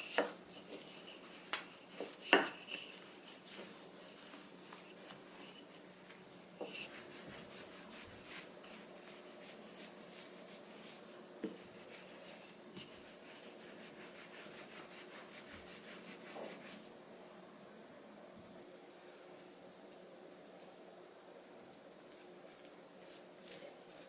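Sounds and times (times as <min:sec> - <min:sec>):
rubbing strokes on a surface: 0:06.6 - 0:16.9.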